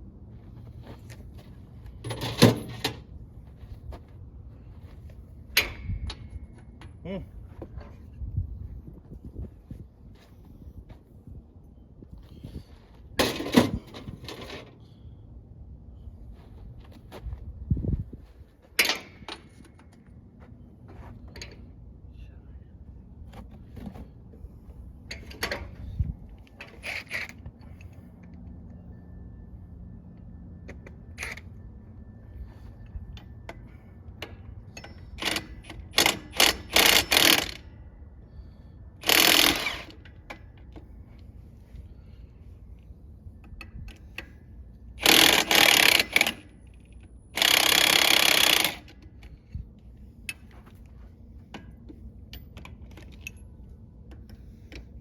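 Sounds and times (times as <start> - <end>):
tools clicking and clanking: 1.0 - 3.2, 5.5 - 8.1, 13.2 - 14.9, 18.7 - 20.2, 25.0 - 28.8, 30.1 - 37.8, 39.0 - 42.3, 43.3 - 55.0
air impact wrench bursts: 34.8 - 37.6, 39.0 - 40.0, 45.0 - 46.6, 47.3 - 49.0.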